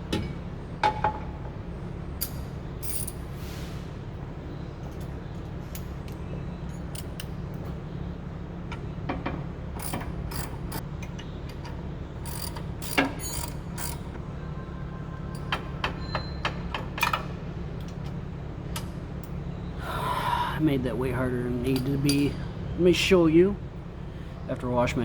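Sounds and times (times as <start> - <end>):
ratchet wrench clicking: 12.2 - 14.0
steady low hum: 17.0 - 25.0.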